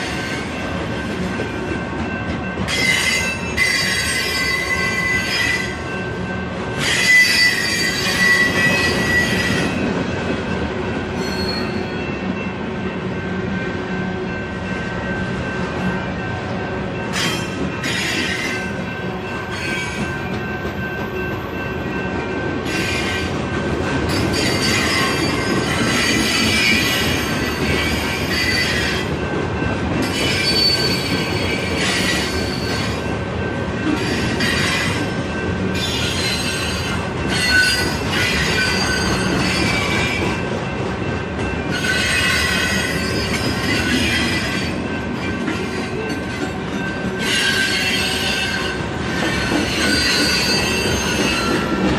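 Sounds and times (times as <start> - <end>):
steel wheels rumbling on rail: 0.0 - 51.9
train wheels squealing: 2.7 - 5.9, 6.8 - 9.9, 11.2 - 12.1, 17.1 - 18.8, 24.1 - 29.1, 30.0 - 33.2, 33.9 - 35.2, 35.8 - 40.3, 41.7 - 51.9.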